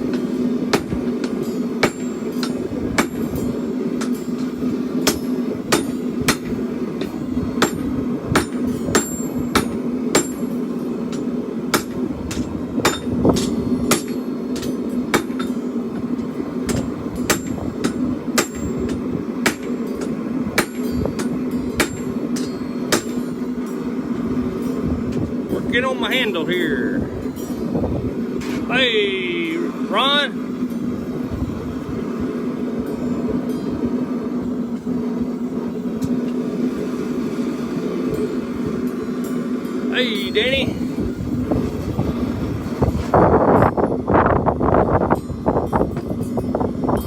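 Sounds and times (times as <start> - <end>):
hammer blows on anvil: 0.0 - 16.1, 16.7 - 23.9
steady low hum: 0.0 - 47.0.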